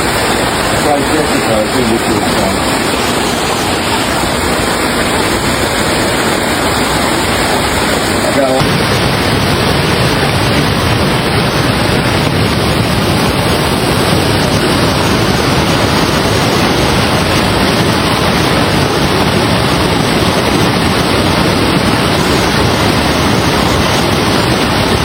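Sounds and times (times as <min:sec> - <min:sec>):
floodwater rushing: 0:00.1 - 0:13.8.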